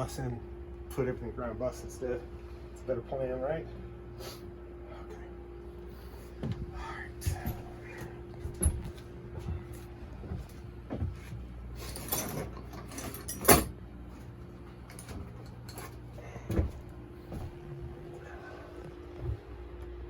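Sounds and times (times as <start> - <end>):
steady low hum: 0.0 - 20.0
metal knocks clanks and rattles: 11.8 - 16.8.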